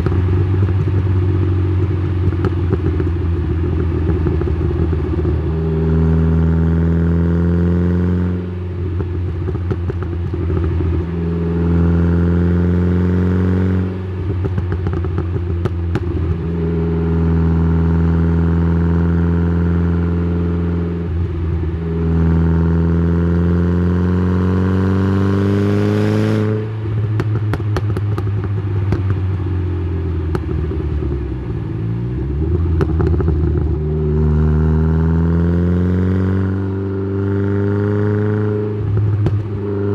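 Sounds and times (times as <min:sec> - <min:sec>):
exhaust crackling and popping: 0:00.0 - 0:06.5, 0:08.8 - 0:11.6, 0:14.1 - 0:16.8, 0:26.6 - 0:35.4, 0:38.8 - 0:39.9
car engine exhaust accelerating: 0:00.0 - 0:39.9.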